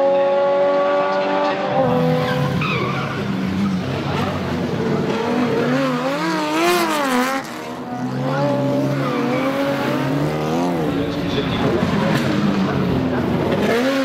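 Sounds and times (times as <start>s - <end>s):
car engine revving through exhaust: 0.0s - 14.0s.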